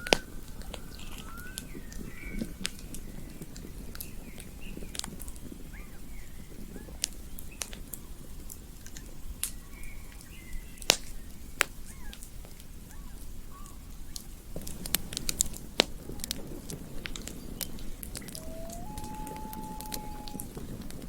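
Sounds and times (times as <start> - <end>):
campfire crackling and popping: 0.0 - 21.0
faint chirping calls: 17.2 - 21.0.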